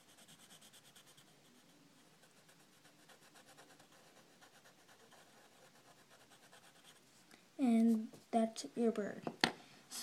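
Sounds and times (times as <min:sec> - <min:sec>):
drawing tool scribbling on paper: 0:00.0 - 0:07.0.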